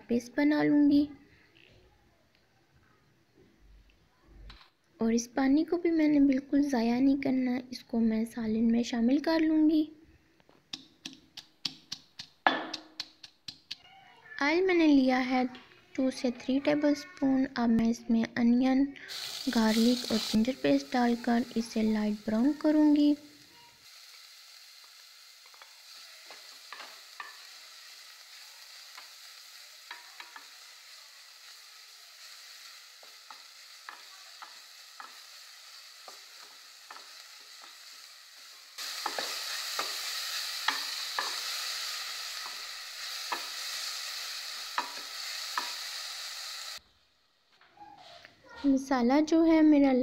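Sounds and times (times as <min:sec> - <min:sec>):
paste sizzling in oil: 0:10.8 - 0:13.8, 0:19.0 - 0:46.8.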